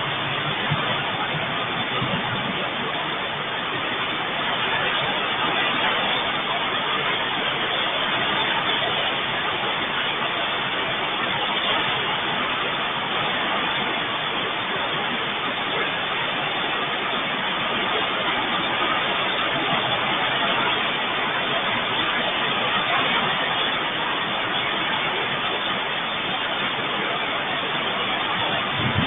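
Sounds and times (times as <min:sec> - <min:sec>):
heavy rain: 0:00.0 - 0:29.0.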